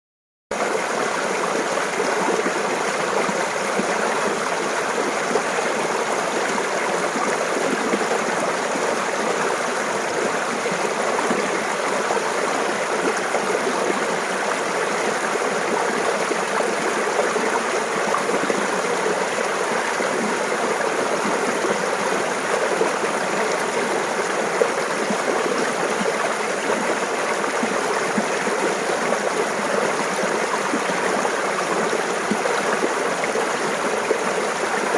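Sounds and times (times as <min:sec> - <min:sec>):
stream babbling: 0:00.6 - 0:34.9.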